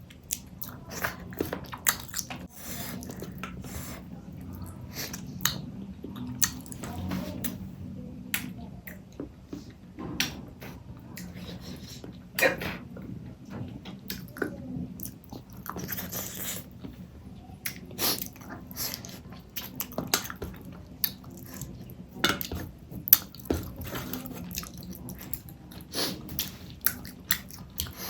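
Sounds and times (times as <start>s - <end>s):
person chewing food: 0.0s - 7.6s, 14.0s - 16.9s, 17.6s - 28.0s.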